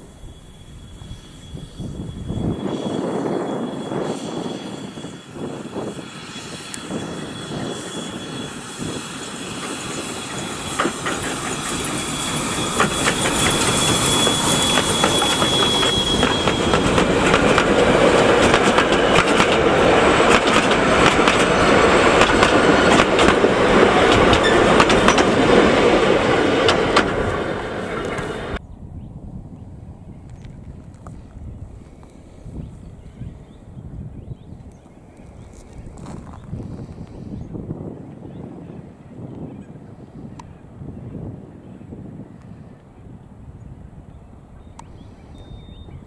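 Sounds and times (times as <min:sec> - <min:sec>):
high steady squeal: 0:00.0 - 0:37.7
train wheels clicking over rail joints: 0:08.6 - 0:28.6.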